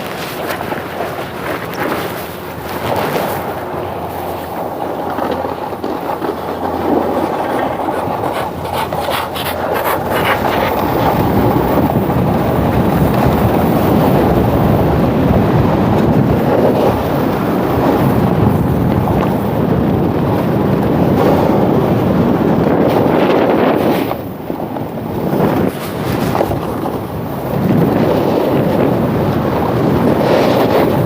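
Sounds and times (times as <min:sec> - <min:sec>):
snowboard scraping over snow: 0:00.0 - 0:31.0.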